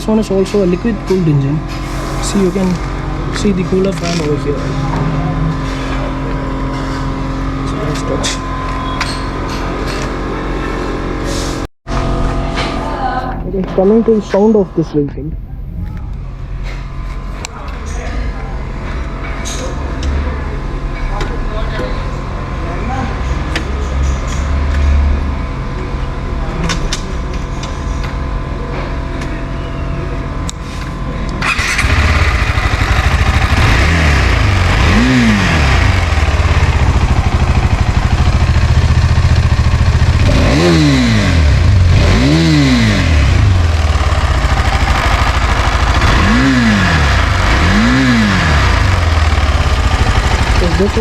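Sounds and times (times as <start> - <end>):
motorcycle engine revving: 0.6 - 12.6, 31.3 - 51.0.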